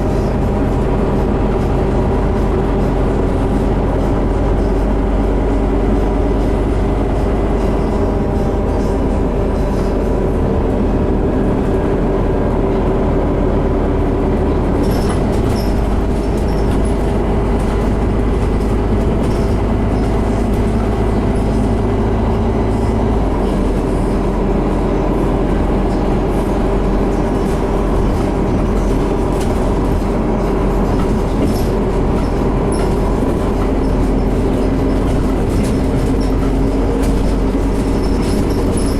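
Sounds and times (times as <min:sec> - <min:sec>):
bus engine drone: 0:00.0 - 0:38.9
rattles: 0:26.9 - 0:38.9.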